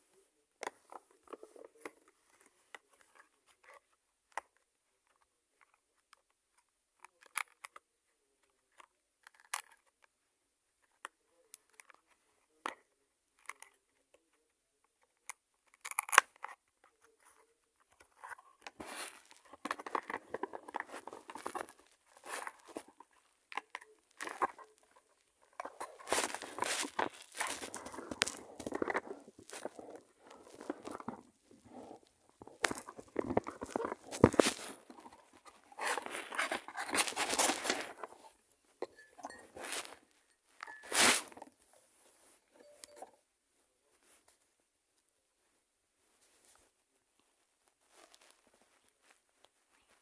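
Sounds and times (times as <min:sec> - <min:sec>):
packaging crinkling and clicking: 0:18.7 - 0:38.2
packaging rustling and tearing: 0:25.5 - 0:38.2.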